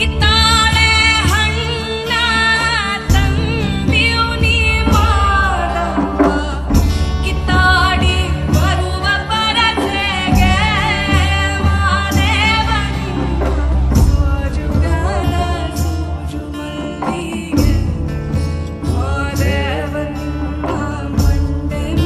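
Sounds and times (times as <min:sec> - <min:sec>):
drum strikes: 0:00.0 - 0:20.0
bass: 0:00.0 - 0:22.0
woman singing: 0:00.0 - 0:22.0.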